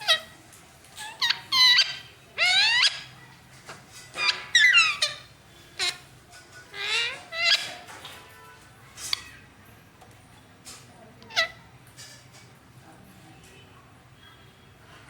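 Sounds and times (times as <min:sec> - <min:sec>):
parrot calls: 0:00.0 - 0:00.4, 0:01.0 - 0:03.2, 0:04.2 - 0:06.1, 0:06.7 - 0:08.0, 0:11.3 - 0:11.6.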